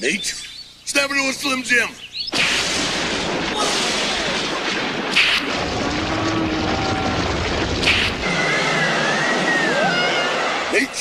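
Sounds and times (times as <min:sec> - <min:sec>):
sharp cracks: 0:02.3 - 0:08.5.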